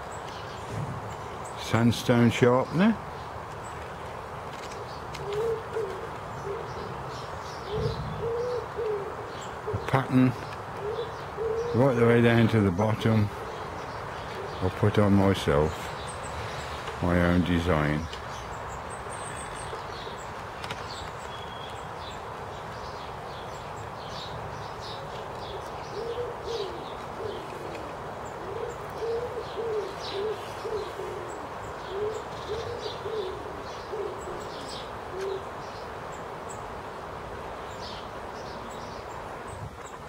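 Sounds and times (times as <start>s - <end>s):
outdoor background noise: 0.0s - 40.0s
small birds chirping: 0.0s - 40.0s
bird cooing: 5.2s - 11.9s, 13.3s - 14.6s, 24.8s - 35.6s.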